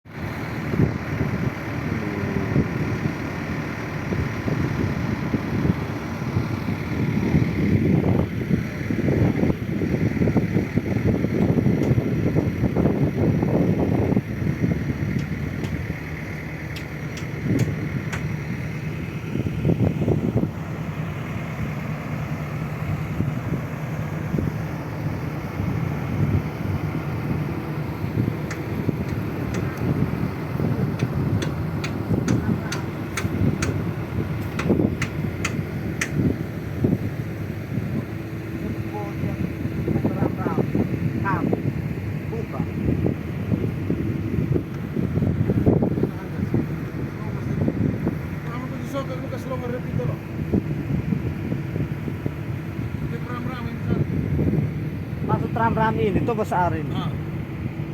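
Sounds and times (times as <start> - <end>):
bulldozer engine running: 0.0 - 57.9
wind buffeting microphone: 0.0 - 57.9
sharp clicks: 16.7 - 18.4, 30.9 - 36.2.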